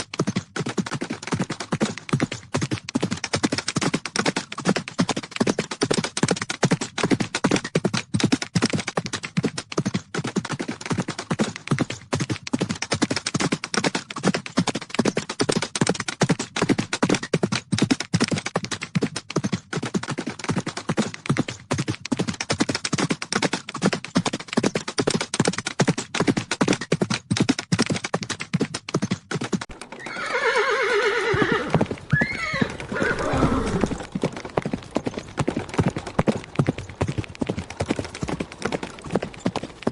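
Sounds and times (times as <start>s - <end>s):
horse hooves galloping: 0.0s - 39.9s
horse whinnying: 29.9s - 34.2s.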